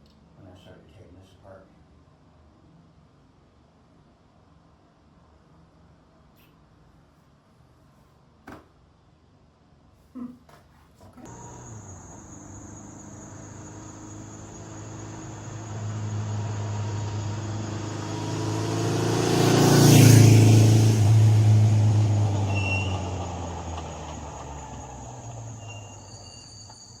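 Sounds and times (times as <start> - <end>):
vehicle engine passing by: 11.3 - 26.5.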